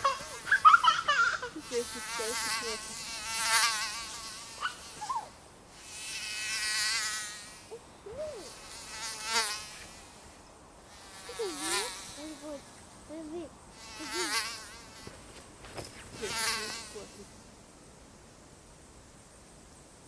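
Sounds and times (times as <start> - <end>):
mosquito whining: 0.0 - 12.8, 13.8 - 15.4, 16.0 - 17.3.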